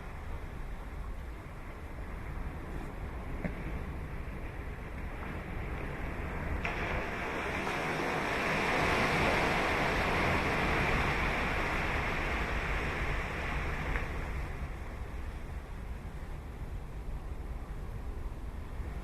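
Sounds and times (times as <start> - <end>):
low surf rumble: 0.0 - 19.0
wave wash hissing: 6.6 - 15.6.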